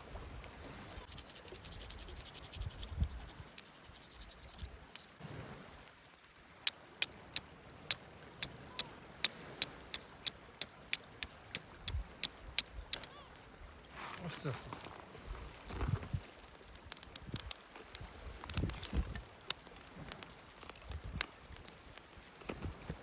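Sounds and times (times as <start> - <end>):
scratching and scraping: 1.0 - 5.1.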